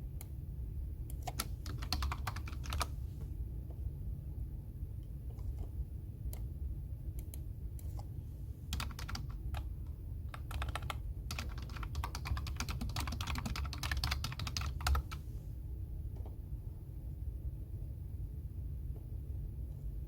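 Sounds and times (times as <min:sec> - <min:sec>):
low room hum: 0:00.0 - 0:20.0
keyboard typing: 0:01.1 - 0:02.9, 0:08.7 - 0:09.7, 0:10.3 - 0:15.2.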